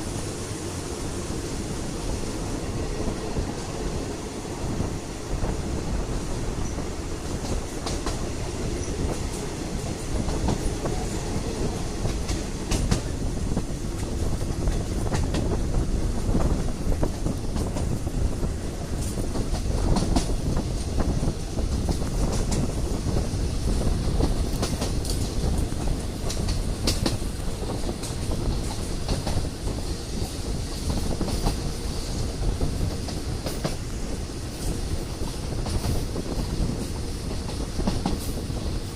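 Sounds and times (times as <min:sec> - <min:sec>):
train carriage rumbling on track: 0:00.0 - 0:38.9.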